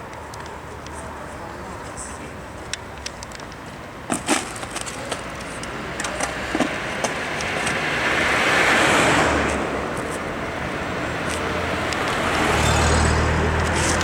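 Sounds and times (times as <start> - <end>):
car passing: 4.2 - 14.0.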